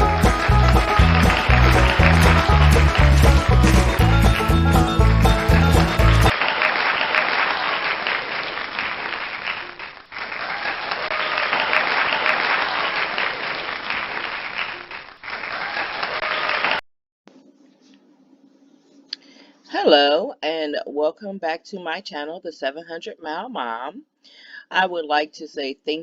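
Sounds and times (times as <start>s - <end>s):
intro music: 0.0s - 6.3s
crowd applause: 0.0s - 16.8s.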